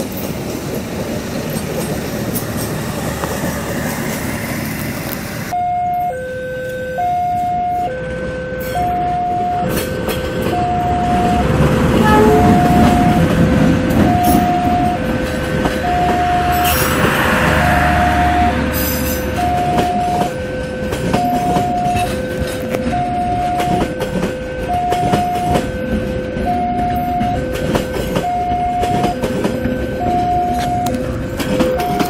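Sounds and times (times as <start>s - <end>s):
diesel locomotive passing: 0.0s - 32.0s
passenger train rolling on rails: 0.0s - 32.0s
electronic two-tone alarm: 5.5s - 15.1s, 15.8s - 16.8s, 17.5s - 18.6s, 19.3s - 32.0s.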